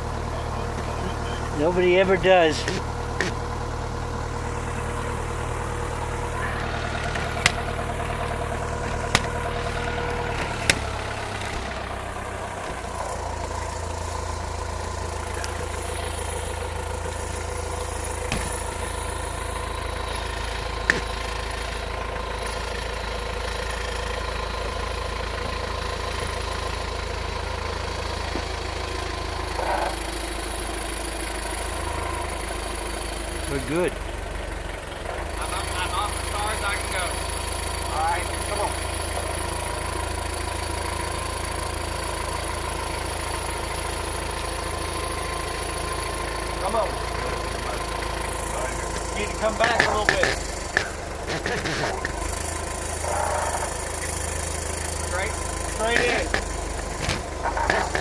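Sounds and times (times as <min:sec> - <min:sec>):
forklift engine running: 0:00.0 - 0:58.0
sharp clicks or knocks: 0:07.0 - 0:13.6, 0:18.3 - 0:19.0, 0:20.9 - 0:21.2, 0:49.0 - 0:52.3.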